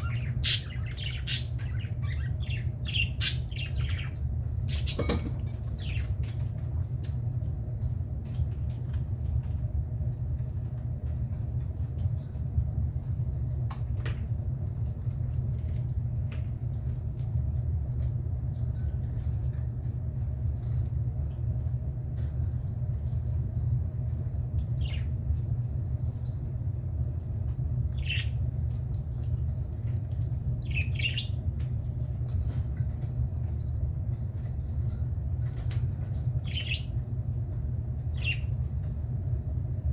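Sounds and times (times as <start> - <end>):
steady low rumble: 19.4 - 39.9.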